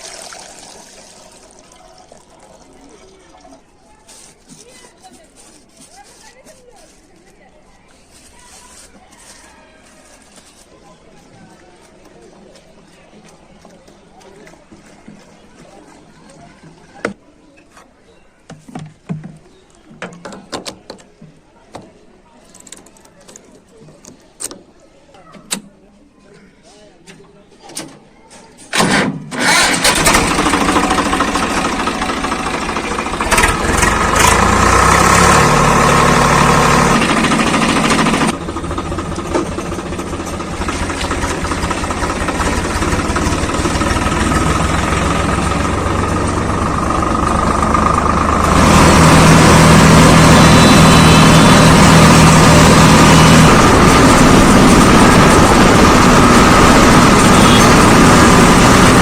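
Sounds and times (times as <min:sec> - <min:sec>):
tractor diesel engine running: 0:28.8 - 0:59.0.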